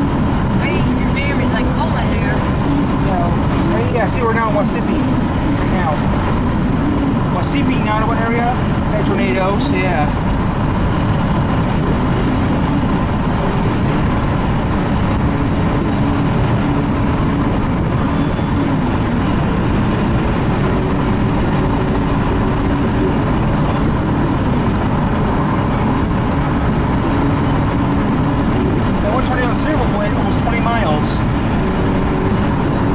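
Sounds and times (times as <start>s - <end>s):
car road and engine rumble: 0.0s - 32.9s.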